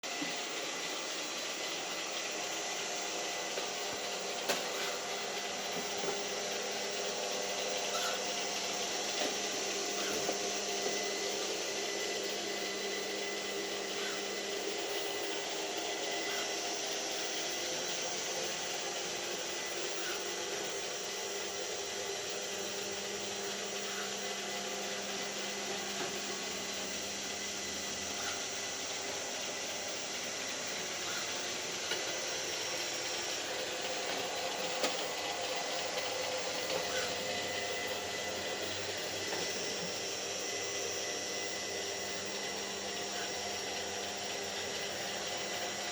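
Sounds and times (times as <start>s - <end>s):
machine hum: 0.1s - 45.9s.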